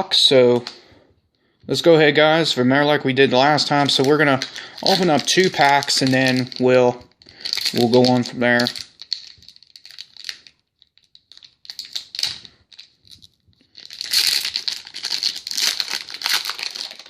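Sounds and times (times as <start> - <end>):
card pack wrappers crinkling: 3.4 - 17.0.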